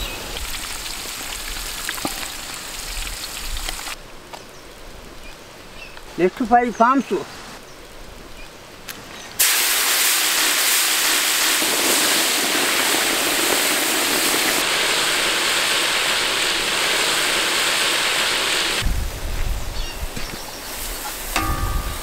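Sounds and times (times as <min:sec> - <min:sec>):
prawns deep-frying in oil: 0:00.0 - 0:04.0, 0:09.4 - 0:18.8.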